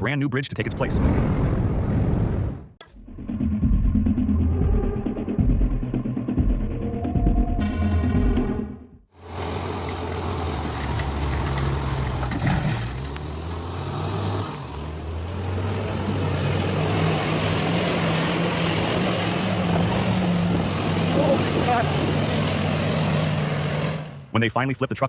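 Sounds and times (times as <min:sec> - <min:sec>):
rumbling outdoor noise: 0:00.5 - 0:24.5
heavy truck engine running: 0:09.1 - 0:24.3.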